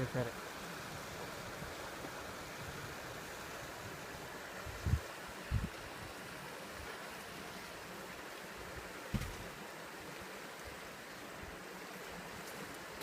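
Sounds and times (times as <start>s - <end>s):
rain falling: 0.0s - 13.0s
short low thump: 9.1s - 9.5s.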